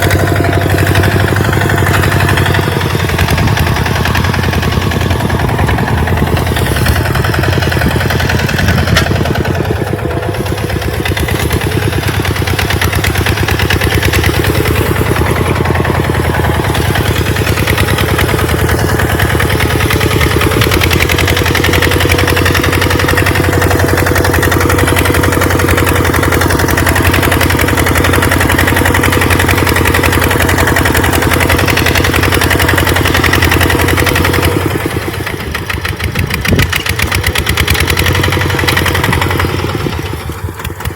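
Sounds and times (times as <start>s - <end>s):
tractor engine running under load: 0.0s - 40.9s.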